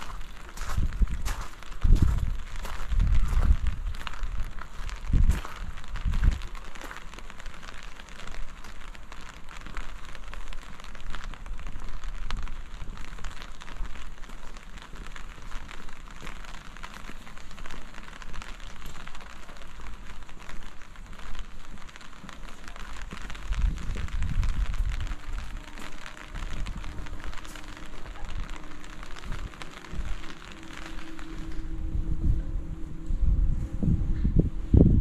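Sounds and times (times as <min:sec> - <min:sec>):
low rumble: 0:00.0 - 0:07.5, 0:20.9 - 0:35.0
rain pattering: 0:00.0 - 0:35.0.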